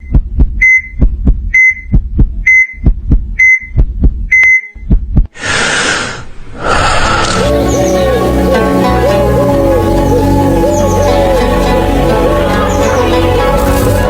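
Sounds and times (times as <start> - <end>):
heartbeat thumps: 0.0 - 5.4.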